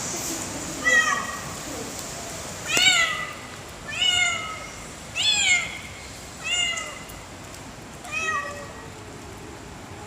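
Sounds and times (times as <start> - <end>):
cat meowing: 2.7 - 5.8, 6.4 - 7.1, 8.0 - 8.9.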